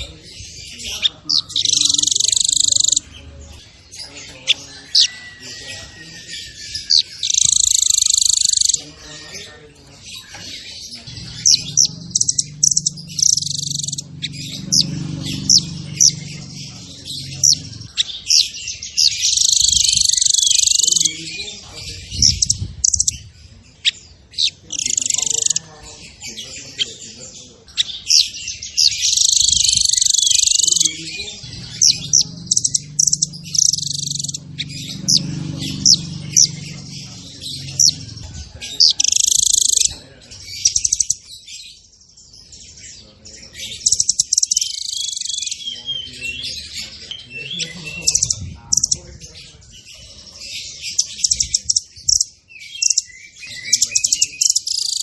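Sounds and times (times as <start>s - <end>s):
songbird singing: 0.0s - 55.0s
low hum: 11.0s - 18.0s, 31.4s - 38.6s.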